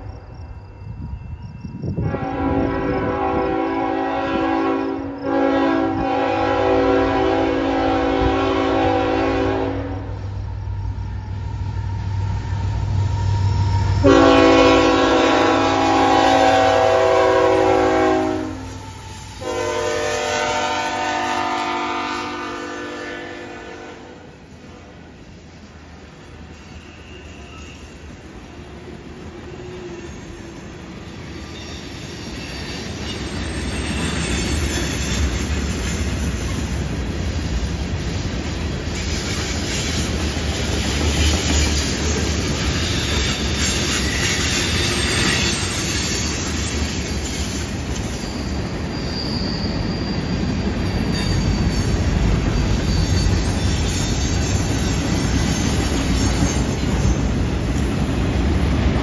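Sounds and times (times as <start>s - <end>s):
freight train wheels rumbling and rattling: 5.2s - 59.0s
thin wheel squeal: 26.4s - 28.8s, 31.2s - 35.4s, 41.4s - 57.2s.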